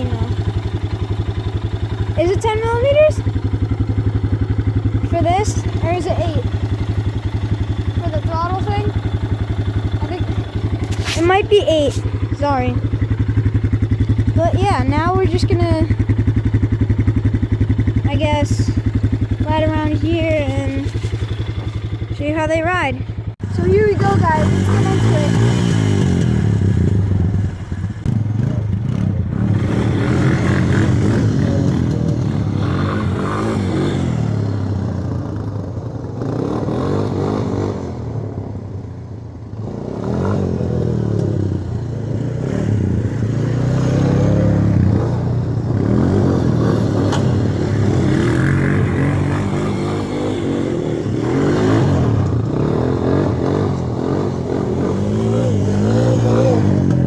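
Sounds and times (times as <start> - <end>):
atv engine revving: 0.0 - 57.0.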